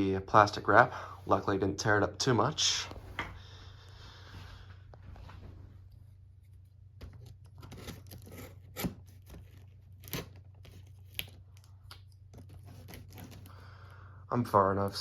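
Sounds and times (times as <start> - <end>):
cardboard tearing and scraping: 7.5 - 11.2, 12.4 - 13.5.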